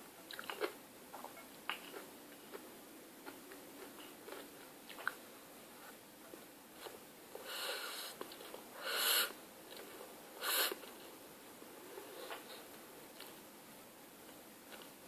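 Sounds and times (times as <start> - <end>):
mouth clicks while eating: 0.3 - 2.0.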